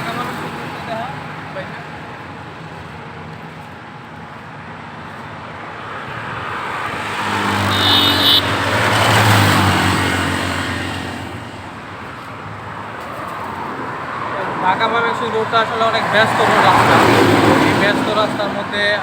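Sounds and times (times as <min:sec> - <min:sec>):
steady traffic noise: 0:00.0 - 0:19.0
vehicle passing close by: 0:05.6 - 0:19.0.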